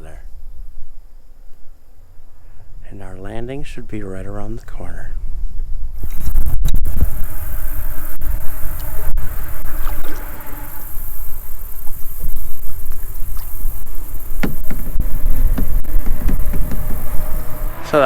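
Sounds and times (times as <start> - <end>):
wind rumble on microphone: 0.0 - 18.0
paddle splashing in water: 8.8 - 11.0, 11.9 - 17.9.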